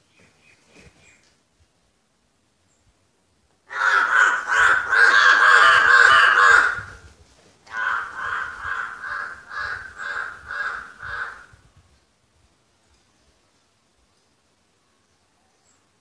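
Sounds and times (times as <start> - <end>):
harsh bird calls: 3.7 - 7.0, 7.7 - 11.6.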